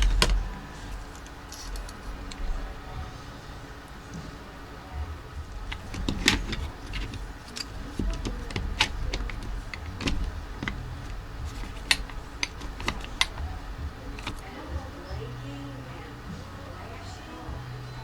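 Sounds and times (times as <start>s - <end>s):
steady low hum: 0.0s - 18.0s
tools clicking on workbench: 5.5s - 14.5s.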